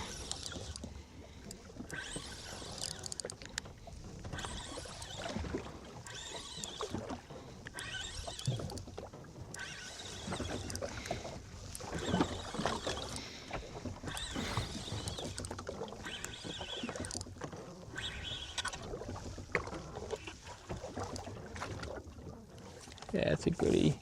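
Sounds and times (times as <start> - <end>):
water washing against hull: 0.0 - 24.0
knocks and clicks of gear: 2.7 - 4.4.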